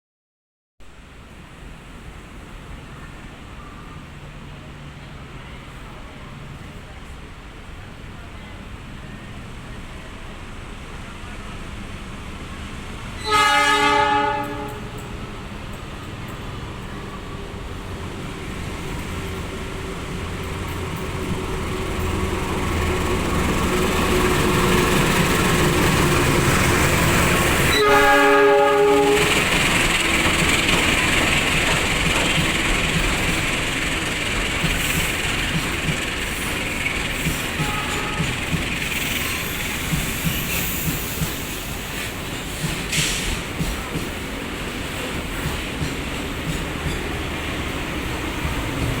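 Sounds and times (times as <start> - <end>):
train rumbling: 0.9 - 49.0
locomotive horn blast: 13.2 - 15.4, 27.0 - 29.5, 37.6 - 38.4.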